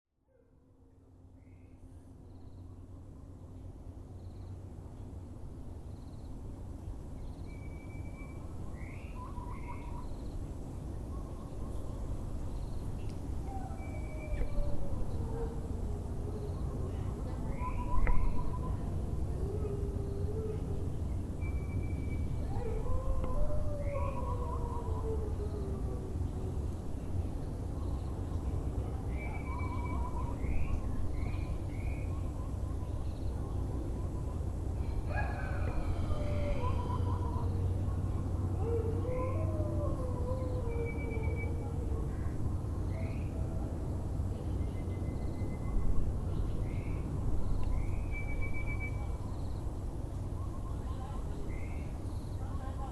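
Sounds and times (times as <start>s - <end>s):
low background rumble: 0.4s - 52.9s
birds calling: 16.3s - 25.4s.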